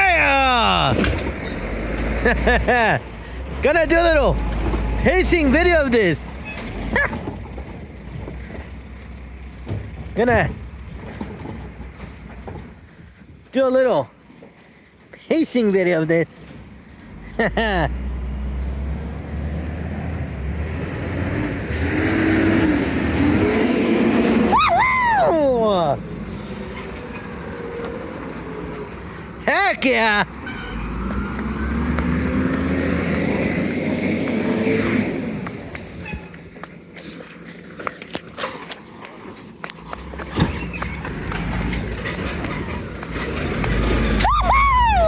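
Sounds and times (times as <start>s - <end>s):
diesel truck engine running: 0.0s - 13.0s
garbage truck diesel engine: 0.0s - 15.1s, 16.0s - 45.0s
clanks and knocks: 9.6s - 12.9s.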